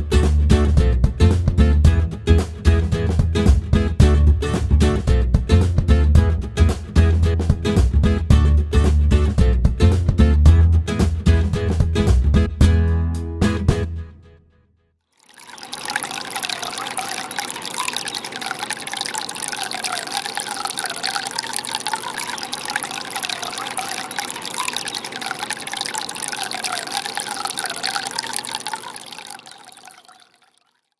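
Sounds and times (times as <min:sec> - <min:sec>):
fountain water splashing: 0:15.3 - 0:30.6.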